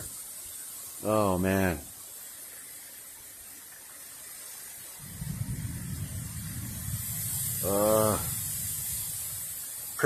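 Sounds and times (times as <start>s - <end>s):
rain hissing: 0.0s - 10.0s
low rumble: 5.0s - 9.9s
wind buffeting microphone: 5.0s - 10.0s.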